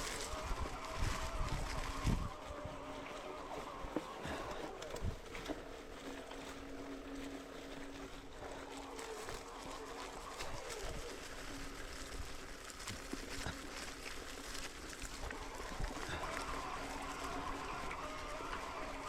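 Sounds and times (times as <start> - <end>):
wind noise: 0.0 - 3.4
bike on rough trail: 0.0 - 19.0.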